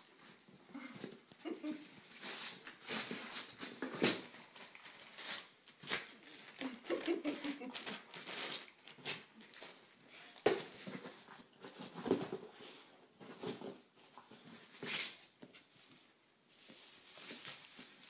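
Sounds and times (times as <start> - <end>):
paper and cardboard ripping: 2.1 - 9.8.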